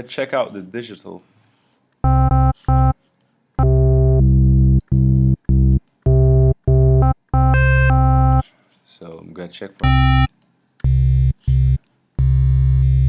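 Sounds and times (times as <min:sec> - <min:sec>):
synthesizer bass notes: 0:02.0 - 0:03.0, 0:03.6 - 0:08.4, 0:09.8 - 0:13.0.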